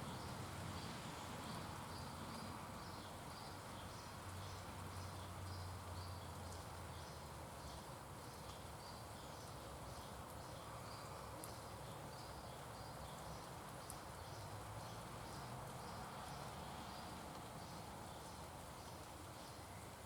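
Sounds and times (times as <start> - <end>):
faint insect chirping: 0.0 - 20.0
outdoor background hiss: 0.0 - 20.0.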